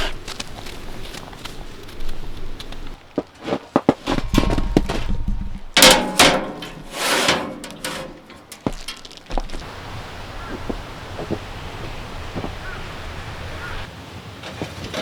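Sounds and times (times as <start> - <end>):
scraping noises: 2.8 - 9.7
sharp knocks and clatter: 3.8 - 9.6.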